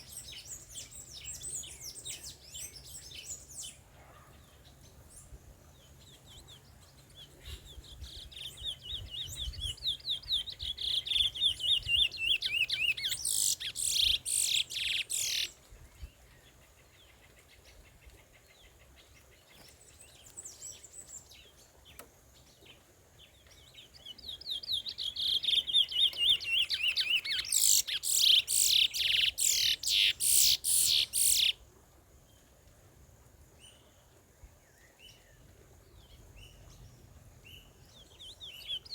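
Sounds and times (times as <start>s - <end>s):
finch singing trills: 7.2s - 15.5s, 24.0s - 31.6s.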